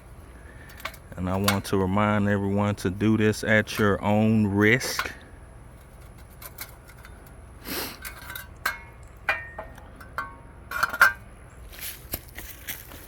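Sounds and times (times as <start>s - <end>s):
metal grill parts clinking: 0.6s - 2.0s, 3.1s - 11.5s.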